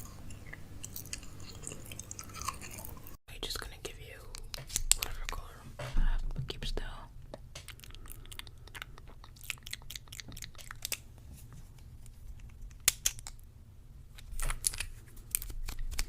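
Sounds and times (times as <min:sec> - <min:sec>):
light clicks taps and crinkles: 0:14.1 - 0:16.0.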